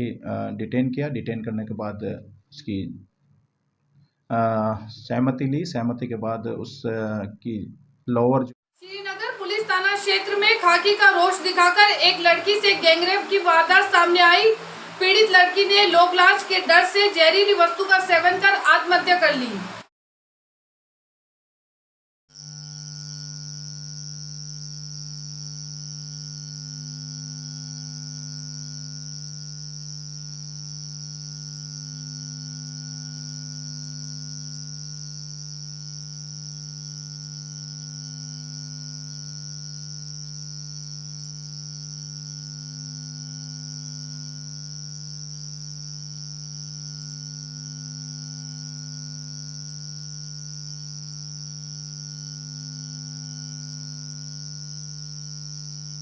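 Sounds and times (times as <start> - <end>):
high hissy whine: 22.5 - 56.0.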